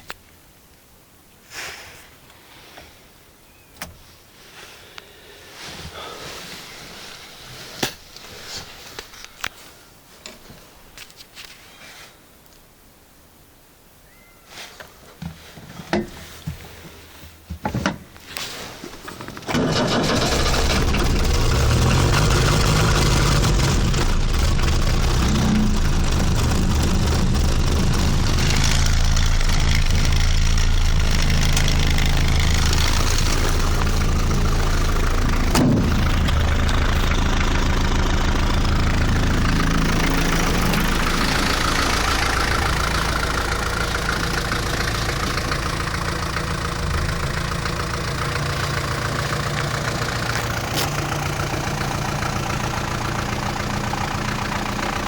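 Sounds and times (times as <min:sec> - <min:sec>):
diesel engine idling: 0:19.2 - 0:55.0.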